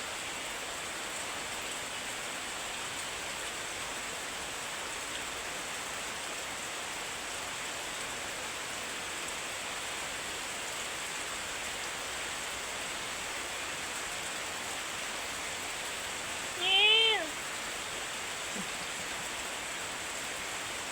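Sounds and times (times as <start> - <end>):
steady rain: 0.0 - 20.9
animal call: 16.6 - 17.4.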